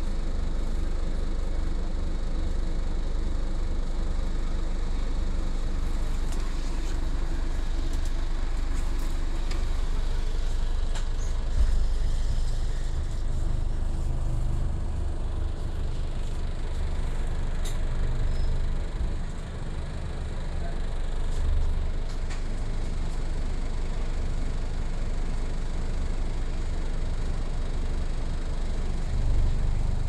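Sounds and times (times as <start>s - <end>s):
bus engine humming: 0.0s - 24.0s.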